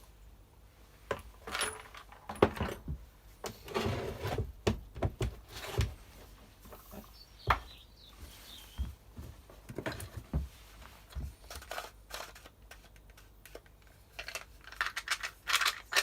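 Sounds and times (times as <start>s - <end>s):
tools and plastic parts knocking: 1.1s - 3.6s.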